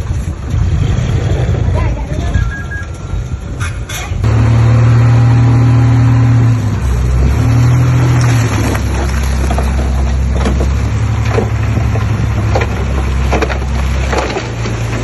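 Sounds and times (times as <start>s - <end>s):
diesel engine revving under load: 4.2s - 15.0s.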